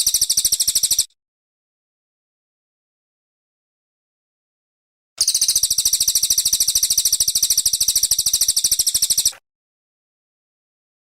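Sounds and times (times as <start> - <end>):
songbird trilling high chirps: 5.2 - 9.4.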